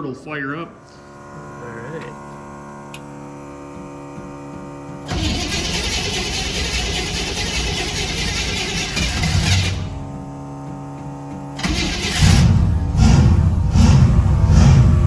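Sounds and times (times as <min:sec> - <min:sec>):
car engine cranking and starting: 0:04.7 - 0:15.0.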